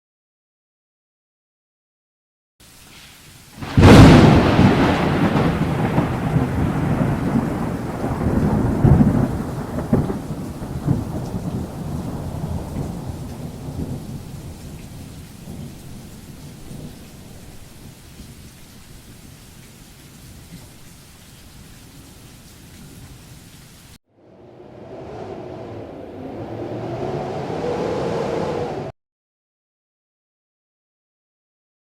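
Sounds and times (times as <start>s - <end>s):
rain hissing: 2.6s - 28.9s
thunder clap and rumble: 3.6s - 17.8s, 24.2s - 28.9s.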